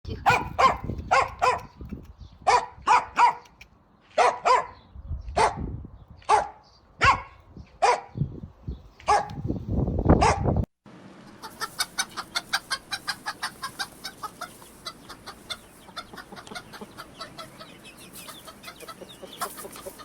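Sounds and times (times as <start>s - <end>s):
dog barking: 0.2s - 1.8s, 2.5s - 3.5s, 4.2s - 4.8s, 5.4s - 5.7s, 6.3s - 8.2s, 9.1s - 9.4s, 10.2s - 10.5s.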